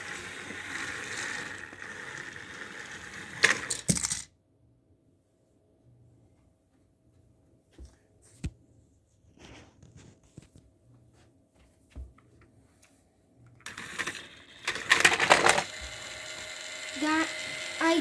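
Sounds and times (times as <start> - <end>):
toy train motor whirring: 0.0 - 4.2, 13.6 - 18.0
plastic toy trains clicking: 0.0 - 4.3, 13.6 - 18.0.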